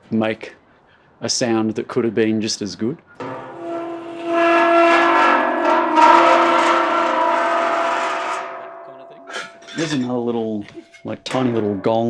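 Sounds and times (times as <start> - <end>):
metal gong ringing: 3.2 - 11.9.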